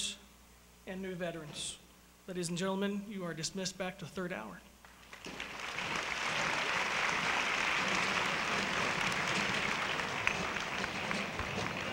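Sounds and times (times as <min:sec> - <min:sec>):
large audience applauding: 0:04.9 - 0:11.9.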